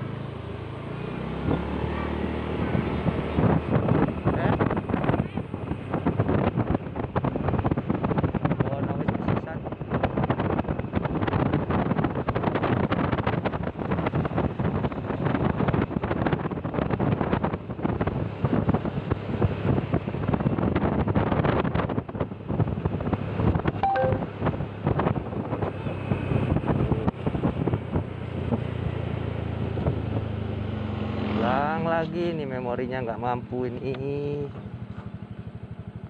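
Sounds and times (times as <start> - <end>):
wind buffeting microphone: 2.6 - 30.7.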